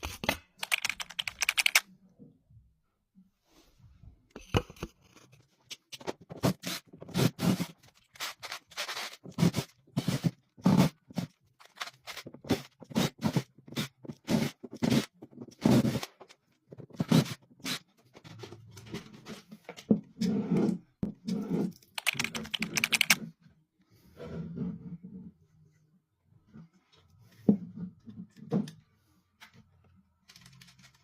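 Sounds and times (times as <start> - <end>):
tools handling hardware: 21.8 - 23.2.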